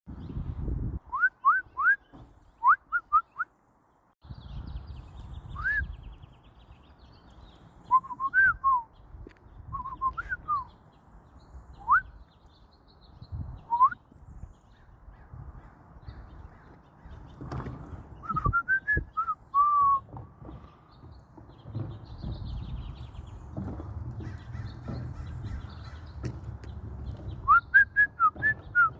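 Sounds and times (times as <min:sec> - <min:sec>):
upward sliding whistled notes: 0:05.5 - 0:05.9, 0:07.9 - 0:08.9, 0:27.4 - 0:28.9.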